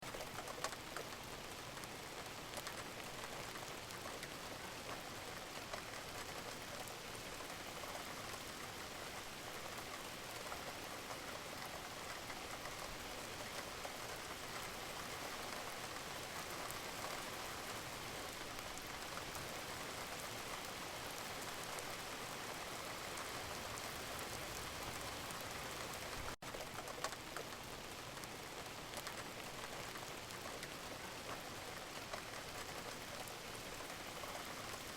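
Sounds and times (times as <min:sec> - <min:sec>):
steady rain pattering: 0:00.0 - 0:34.9.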